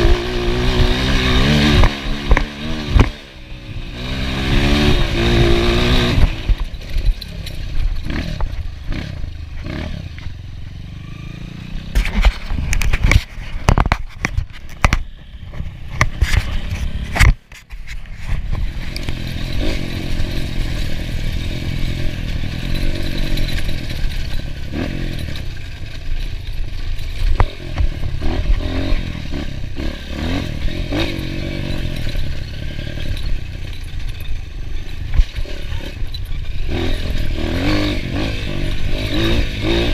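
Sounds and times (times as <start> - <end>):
motorcycle engine revving: 0.0 - 39.9
sharp knocks and clattering: 11.9 - 39.9.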